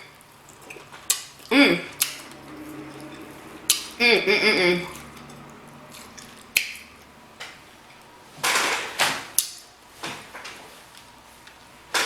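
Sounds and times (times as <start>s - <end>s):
wet mouth smacking: 0.5s - 2.4s.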